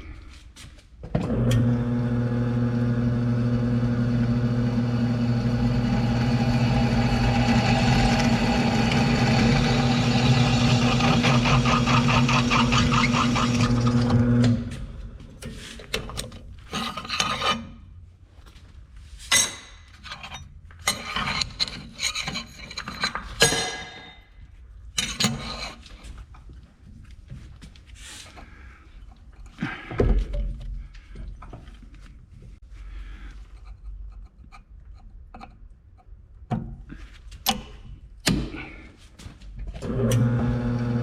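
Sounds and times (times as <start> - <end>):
power tool rasping on metal: 4.9 - 14.1.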